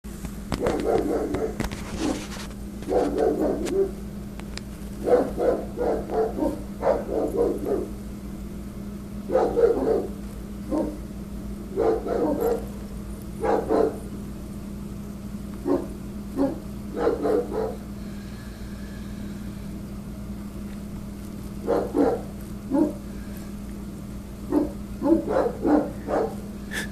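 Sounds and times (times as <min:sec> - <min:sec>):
steady low hum: 0:00.1 - 0:26.9
dog barking angrily: 0:00.6 - 0:04.0, 0:05.0 - 0:08.0, 0:09.2 - 0:11.1, 0:11.7 - 0:14.2, 0:15.6 - 0:17.9, 0:21.6 - 0:23.1, 0:24.4 - 0:26.6.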